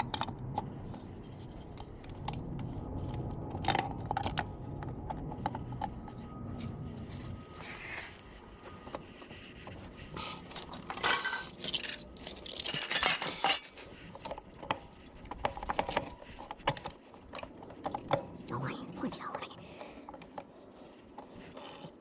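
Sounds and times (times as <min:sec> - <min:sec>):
metal parts clinking and scraping: 0:10.4 - 0:16.2.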